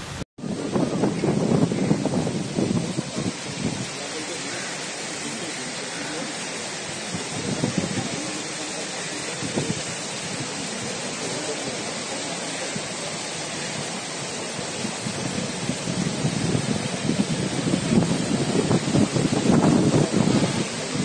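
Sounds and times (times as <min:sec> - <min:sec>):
wind buffeting microphone: 0:00.0 - 0:04.0, 0:07.1 - 0:08.3, 0:14.5 - 0:21.0
heavy rain: 0:00.0 - 0:21.0
running floodwater: 0:00.0 - 0:21.0.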